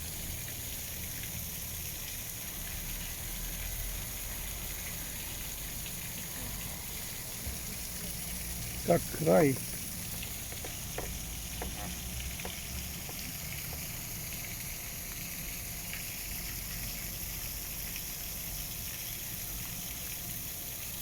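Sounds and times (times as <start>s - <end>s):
steady outdoor hiss: 0.0s - 21.0s
faint ticks: 9.0s - 14.0s.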